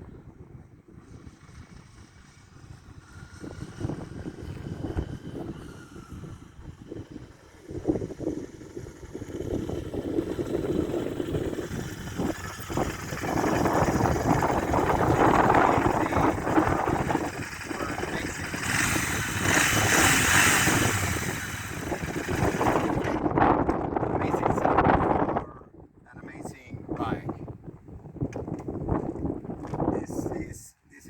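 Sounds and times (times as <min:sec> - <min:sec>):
motorcycle engine running: 0:00.0 - 0:24.8.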